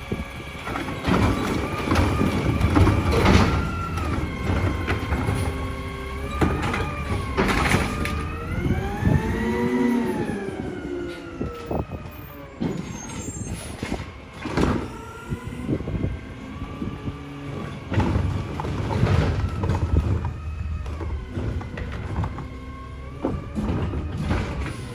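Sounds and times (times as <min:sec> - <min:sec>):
garbage truck engine revving: 0:00.0 - 0:24.9.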